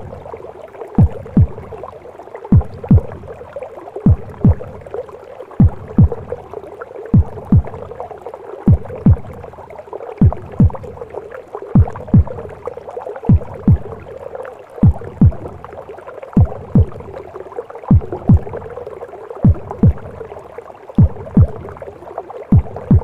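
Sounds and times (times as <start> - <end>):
heartbeat thumps: 0.0 - 0.3, 1.0 - 1.9, 2.5 - 3.4, 4.0 - 4.9, 5.6 - 6.4, 7.1 - 8.0, 8.7 - 9.5, 10.2 - 11.0, 11.8 - 12.6, 13.3 - 14.1, 14.8 - 15.7, 16.4 - 17.2, 17.9 - 18.8, 19.4 - 20.3, 21.0 - 21.8, 22.5 - 23.0
constant rushing womb noise: 0.0 - 23.0.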